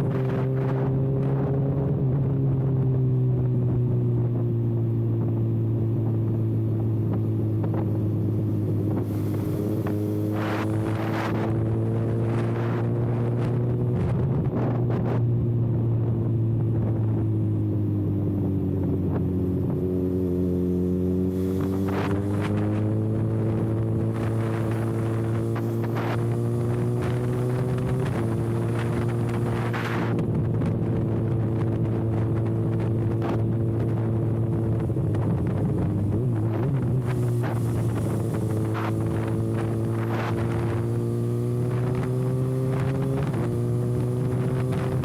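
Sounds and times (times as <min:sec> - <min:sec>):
motorcycle engine cruising: 0:00.0 - 0:45.0.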